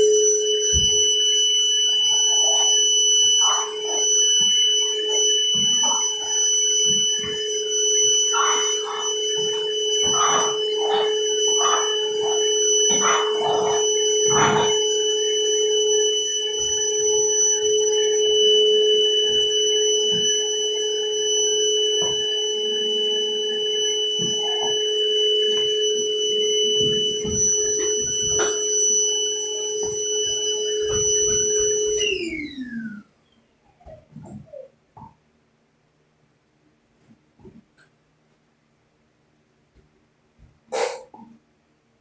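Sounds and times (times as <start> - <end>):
vacuum cleaner motor whining: 0.0 - 33.0.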